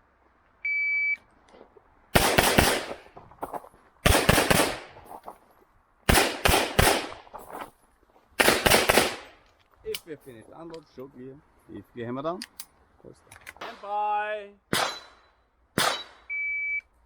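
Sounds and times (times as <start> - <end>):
pistol shots: 2.2 - 3.1, 4.0 - 5.0, 6.1 - 7.3, 8.4 - 9.4, 14.7 - 16.3
shot timer beep: 16.0 - 16.9.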